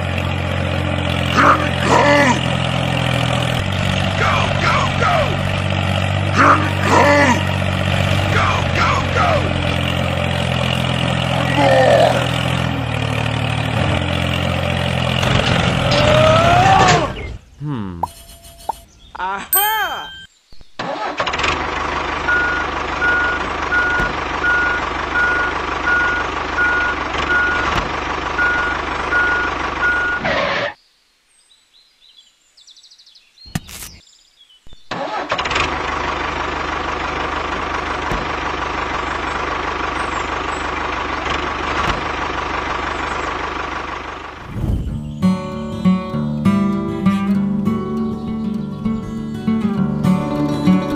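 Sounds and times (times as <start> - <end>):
tractor engine running: 0.0 - 30.7, 34.8 - 50.9
regular beeping: 17.6 - 20.8, 22.3 - 27.8, 28.4 - 30.3.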